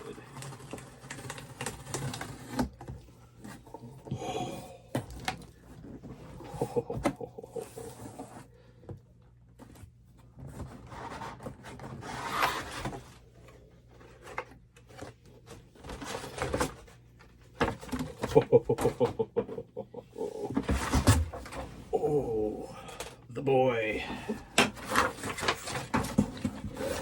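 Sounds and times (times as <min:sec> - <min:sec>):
cardboard rustling and rubbing: 0:00.0 - 0:04.0, 0:09.6 - 0:18.3, 0:24.7 - 0:27.0.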